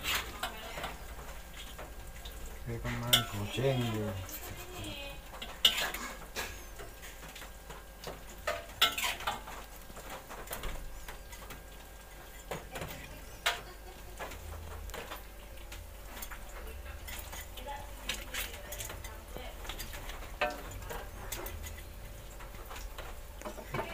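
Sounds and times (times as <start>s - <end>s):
cutlery clinking on dishes: 3.0s - 3.4s.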